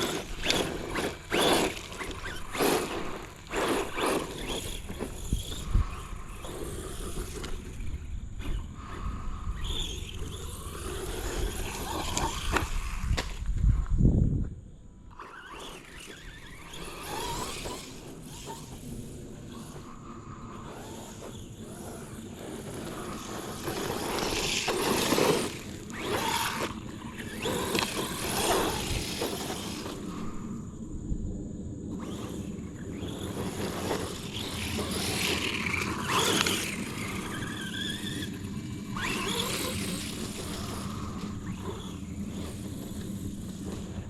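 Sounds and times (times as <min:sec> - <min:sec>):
rc truck electric motor whining: 0:00.0 - 0:31.0, 0:31.8 - 0:44.0.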